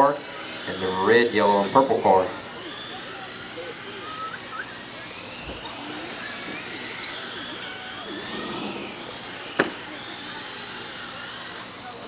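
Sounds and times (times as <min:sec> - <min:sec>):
rc truck motors whining: 0:00.0 - 0:12.0.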